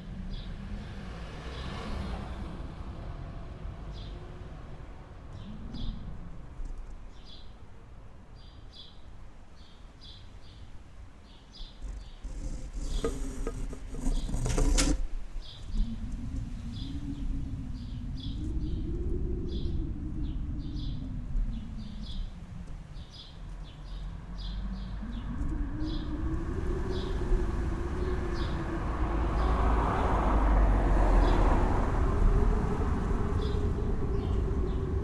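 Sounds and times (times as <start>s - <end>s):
wind blowing in gusts: 0.0s - 35.0s.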